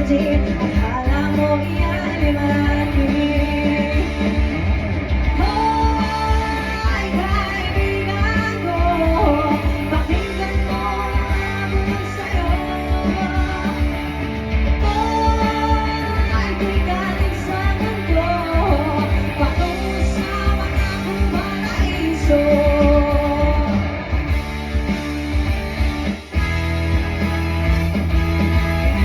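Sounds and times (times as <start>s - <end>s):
live rock band playing: 0.0s - 29.0s.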